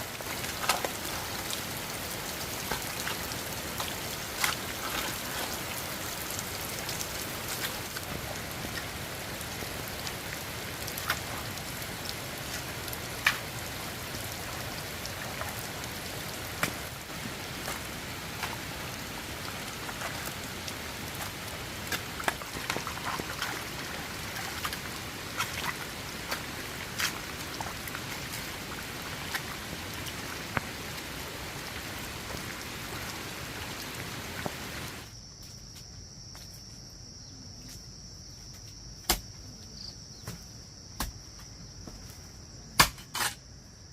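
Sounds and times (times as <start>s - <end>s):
heavy rain: 0.0s - 35.1s
insect trill: 35.1s - 43.9s.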